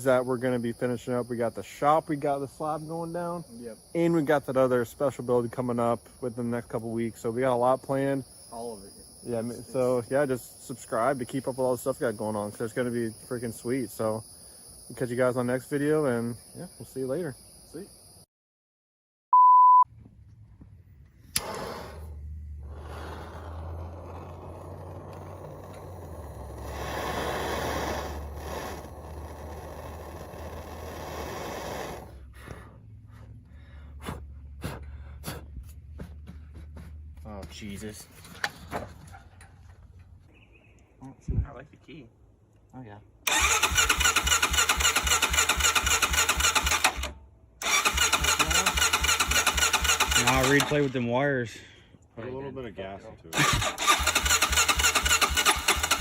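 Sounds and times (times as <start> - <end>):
engine cranking on electric starter: 21.3 - 32.2, 43.3 - 51.0, 53.4 - 56.0.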